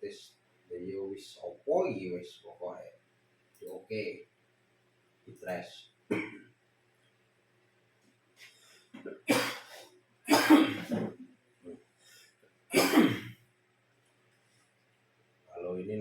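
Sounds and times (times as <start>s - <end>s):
man coughing: 6.1s - 6.4s, 9.3s - 11.1s, 12.7s - 13.3s
throat clearing sounds: 6.1s - 6.4s, 9.0s - 11.2s, 12.7s - 13.4s.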